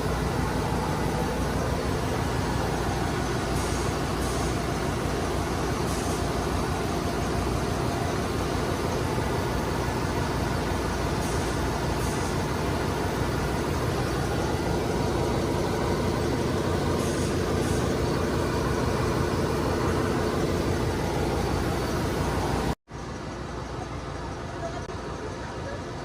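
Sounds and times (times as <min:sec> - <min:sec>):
broad hiss: 0:00.0 - 0:07.4, 0:11.0 - 0:15.0, 0:16.8 - 0:19.1
engine room machinery drone: 0:00.0 - 0:26.0.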